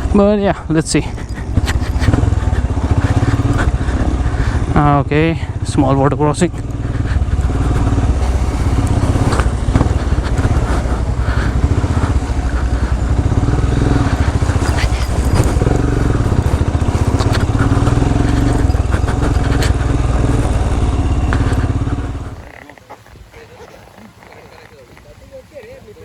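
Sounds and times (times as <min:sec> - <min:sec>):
motorcycle engine running: 0:00.0 - 0:22.6
knocks and clatter: 0:06.5 - 0:22.5.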